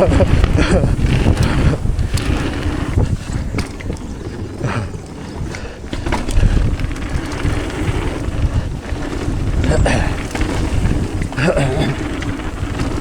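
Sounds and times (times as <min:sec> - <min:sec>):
bike knocks and rattles: 0:00.0 - 0:13.0
bike tyres rolling on dirt: 0:00.0 - 0:13.0
wind buffeting microphone: 0:00.0 - 0:13.0.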